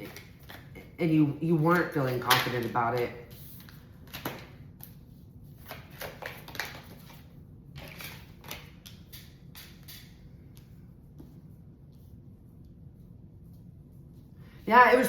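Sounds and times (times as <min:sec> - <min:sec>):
cards rustling and tapping: 0:02.0 - 0:05.0, 0:05.6 - 0:09.9.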